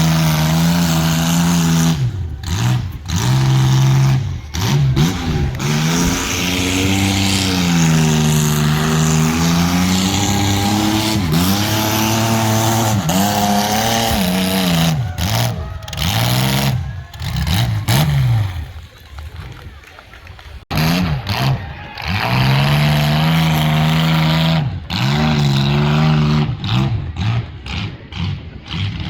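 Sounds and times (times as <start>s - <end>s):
car engine revving hard: 0.0s - 18.7s, 20.7s - 29.0s
loud rushing noise: 0.0s - 18.8s.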